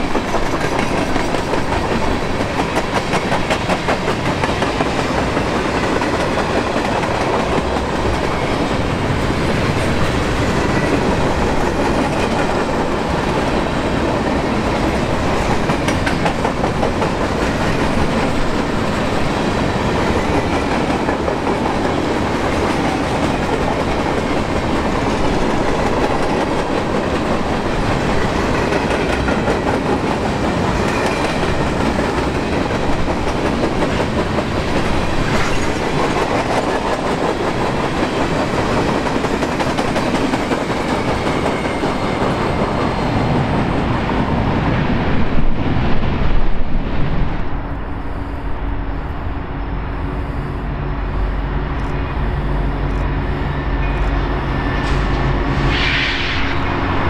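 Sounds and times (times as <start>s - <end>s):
freight train wheels clacking: 0.0s - 43.9s.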